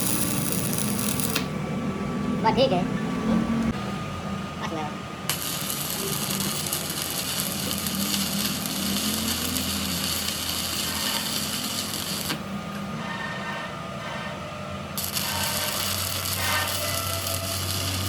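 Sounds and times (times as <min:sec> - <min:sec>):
power tool running with hiss: 0:00.0 - 0:01.5, 0:05.3 - 0:12.5, 0:15.0 - 0:18.0.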